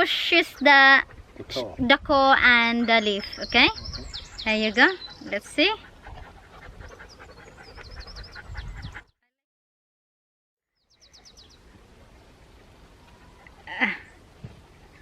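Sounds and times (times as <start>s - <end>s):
small birds chirping: 2.4s - 9.1s, 10.7s - 15.0s.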